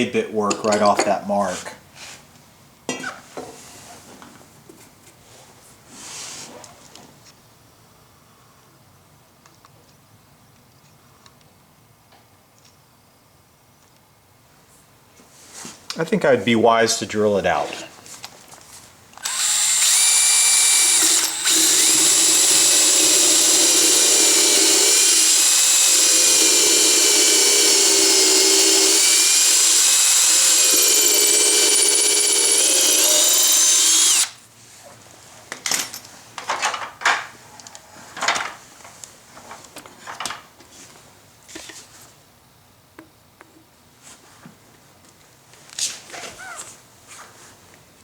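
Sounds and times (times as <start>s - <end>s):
electric drill boring wood: 19.2s - 34.4s.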